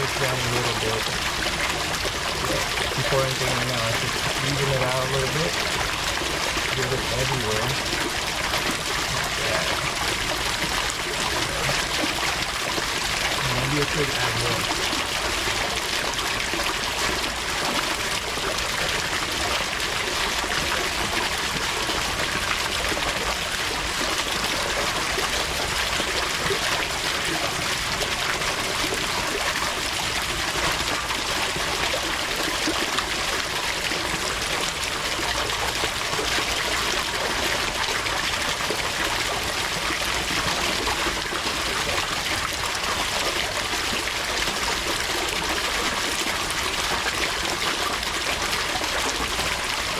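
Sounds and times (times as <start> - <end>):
water trickling: 0.0 - 49.9.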